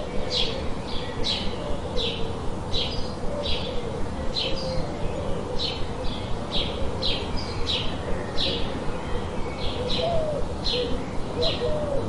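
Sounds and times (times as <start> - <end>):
lower wavering bird call: 8.1 - 12.0.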